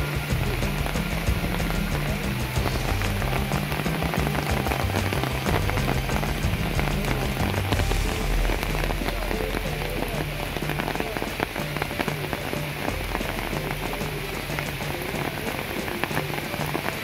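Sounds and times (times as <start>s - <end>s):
heavy rain on foliage and water: 0.0s - 17.0s.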